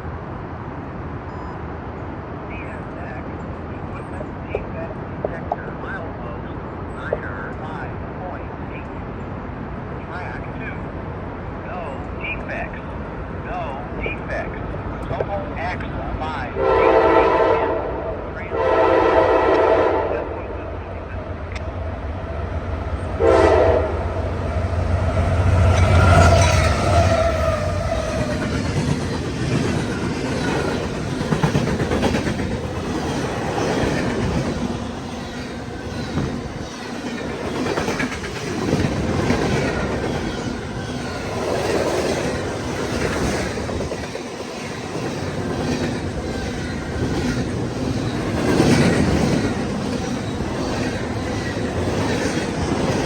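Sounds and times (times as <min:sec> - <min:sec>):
locomotive engines rumbling: 0:02.4 - 0:53.0
train horn blast: 0:16.6 - 0:20.9, 0:23.0 - 0:28.1
train wheels clattering over rail joints: 0:23.9 - 0:53.0.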